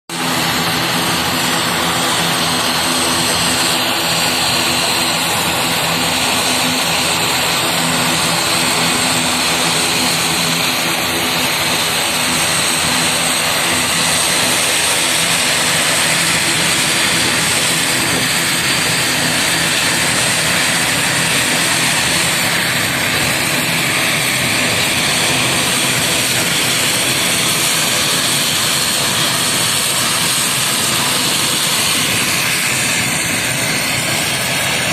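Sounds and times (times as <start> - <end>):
aircraft engines running: 0.1 - 34.9.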